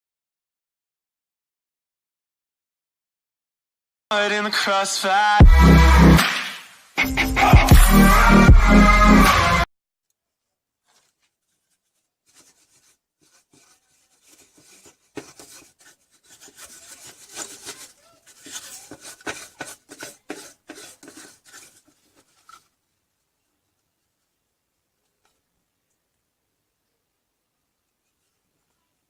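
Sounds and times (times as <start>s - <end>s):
objects rubbing and scraping: 10.8s - 22.7s.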